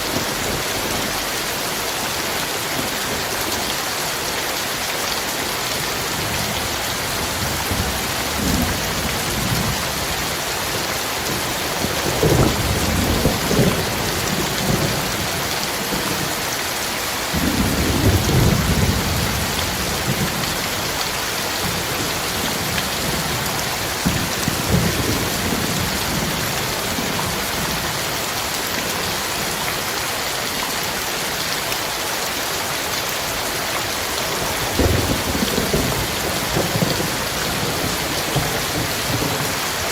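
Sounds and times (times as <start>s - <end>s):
heavy rain pouring: 0.0s - 39.9s
thunder rumbling: 6.3s - 16.2s, 17.3s - 27.7s, 34.4s - 39.9s.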